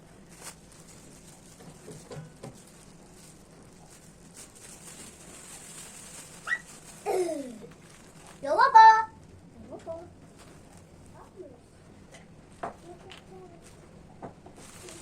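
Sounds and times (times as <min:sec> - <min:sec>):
high-pitched vocal squeak: 0:06.4 - 0:06.7.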